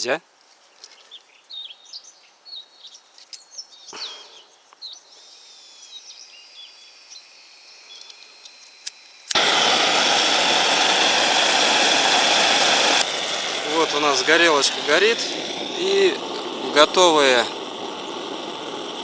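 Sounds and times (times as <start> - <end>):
small birds chirping: 0.0 - 9.3, 13.0 - 19.0
gas torch hissing: 5.2 - 19.0.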